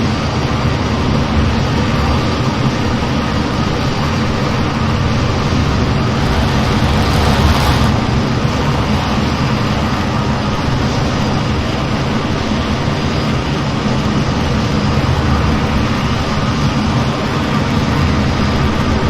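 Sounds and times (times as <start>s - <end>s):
jet in flight rushing: 2.8s - 11.4s.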